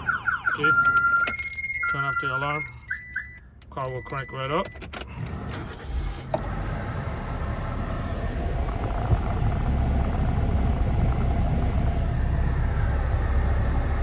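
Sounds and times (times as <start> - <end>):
car engine starting and idling: 4.8 - 14.0.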